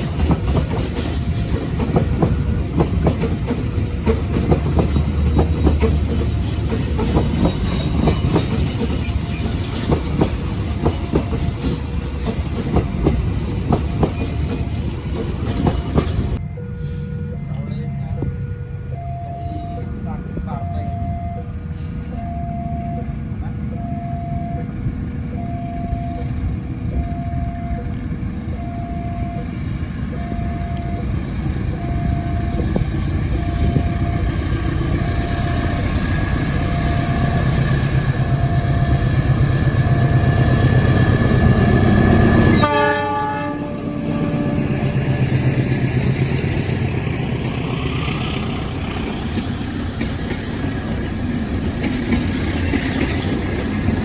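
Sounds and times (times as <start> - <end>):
train wheel clatter: 0.0 - 16.4, 43.6 - 54.0
train rumble: 0.0 - 54.0
two-tone warning signal beeping: 16.4 - 43.0
train horn blast: 41.0 - 45.6.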